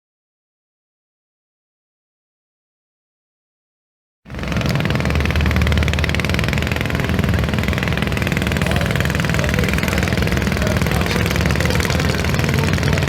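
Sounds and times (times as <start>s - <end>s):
tractor engine running loudly: 4.3s - 13.0s.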